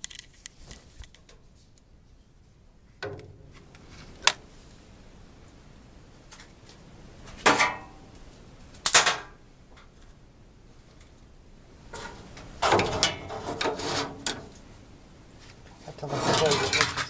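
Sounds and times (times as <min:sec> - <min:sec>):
clattering knocks and rattles: 0:12.0 - 0:14.4.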